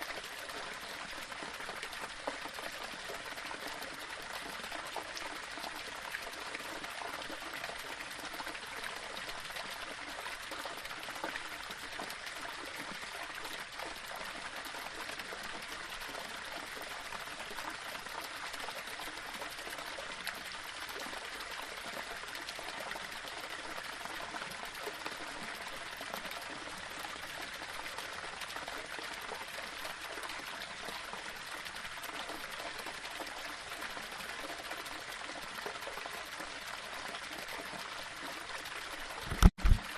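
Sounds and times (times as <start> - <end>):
waterfall splashing over rocks: 39.2 - 39.9.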